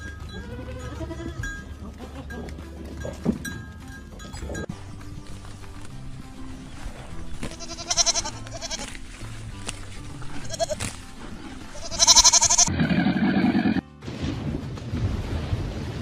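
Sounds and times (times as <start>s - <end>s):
background music: 0.0s - 15.0s
goats bleating: 0.2s - 3.2s, 7.3s - 9.1s, 9.8s - 13.8s.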